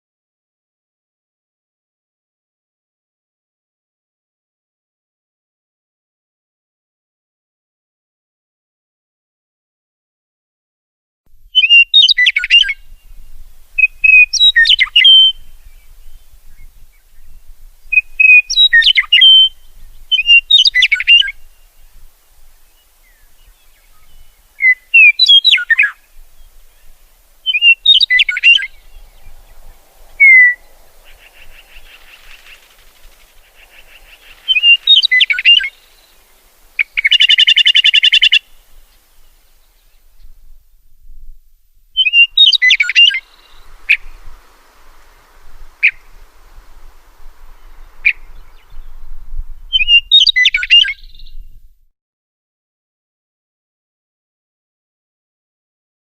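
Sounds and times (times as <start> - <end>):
songbirds chirping: 11.5 - 51.6
buzzy bird trill: 11.6 - 15.9, 17.9 - 21.8, 23.0 - 39.3, 42.0 - 51.4.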